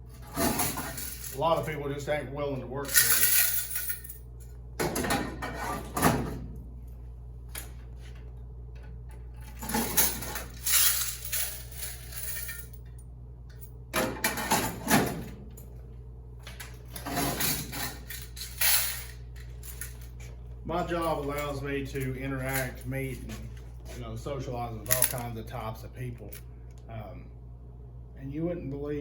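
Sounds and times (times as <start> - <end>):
steady low hum: 0.0 - 29.0
coins clattering: 0.2 - 1.4, 2.9 - 4.2, 9.5 - 12.9, 17.0 - 20.2, 24.9 - 25.3.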